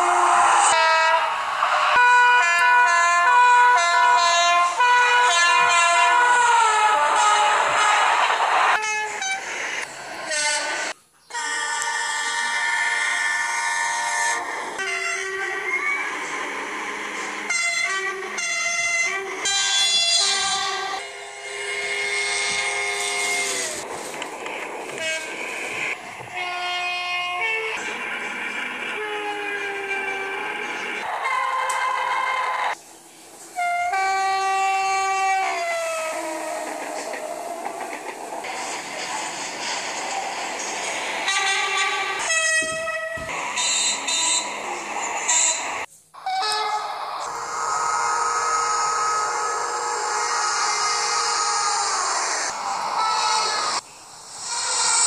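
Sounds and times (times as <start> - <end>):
multi-tone train horn: 0.0 - 9.6, 10.2 - 23.9, 24.9 - 32.8, 33.6 - 37.9, 41.2 - 53.8
rush of noise: 7.0 - 10.9, 51.8 - 55.0.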